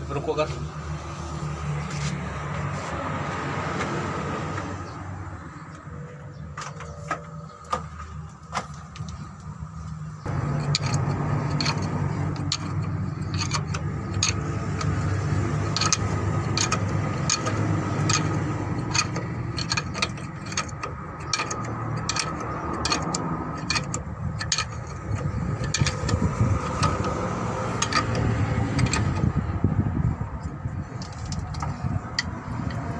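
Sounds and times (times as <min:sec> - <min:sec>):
engine running: 0:00.0 - 0:32.9
metallic clinks and knocks: 0:10.3 - 0:29.5.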